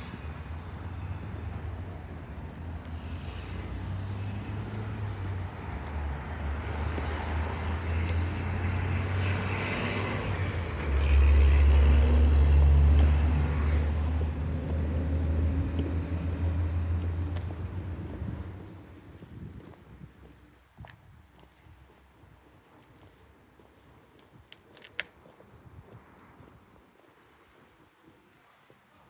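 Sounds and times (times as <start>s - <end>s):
train passing with rumble: 0.0s - 19.1s
rushing wheel-on-rail noise: 0.0s - 19.4s.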